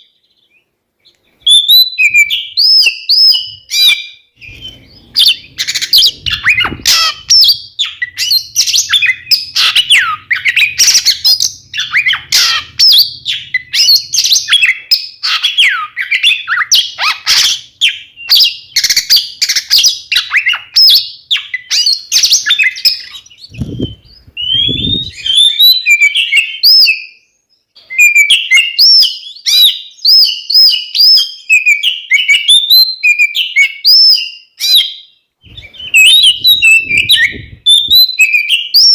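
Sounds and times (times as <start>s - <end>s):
magpie-robin singing: 0.0s - 38.9s
low thumps: 4.4s - 7.6s, 23.5s - 25.2s, 35.5s - 38.0s.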